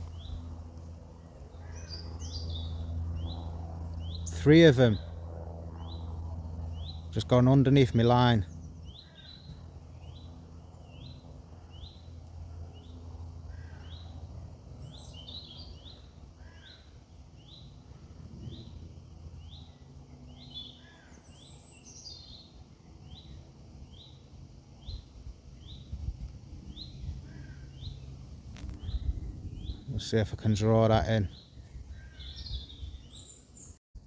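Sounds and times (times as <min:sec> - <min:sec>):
low background hum: 0:00.0 - 0:33.8
other bird calls: 0:31.3 - 0:33.8.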